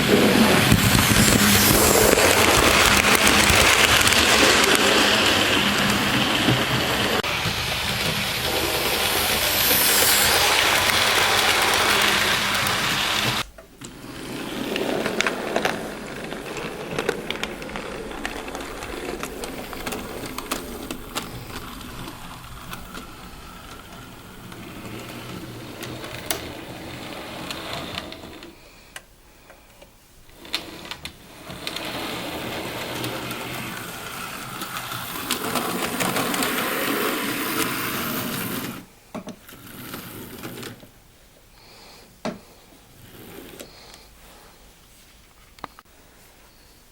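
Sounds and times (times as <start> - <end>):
wheels clicking over track: 0.0 - 28.5, 30.3 - 38.8.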